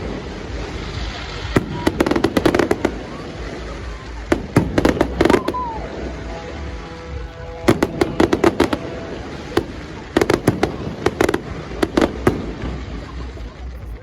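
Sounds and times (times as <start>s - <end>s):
fireworks crackling pops: 0.0s - 14.0s
firework whistle: 1.5s - 12.6s.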